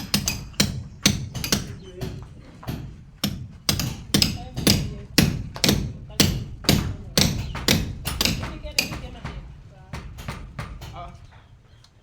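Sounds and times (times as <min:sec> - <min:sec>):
hammer blows: 0:00.0 - 0:11.8.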